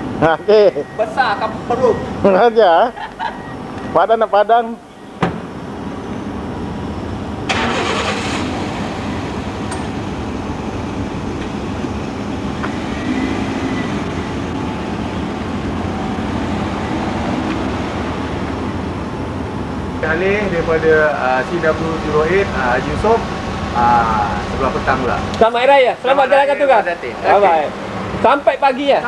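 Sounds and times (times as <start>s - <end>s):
car engine starting and running: 5.4s - 25.6s.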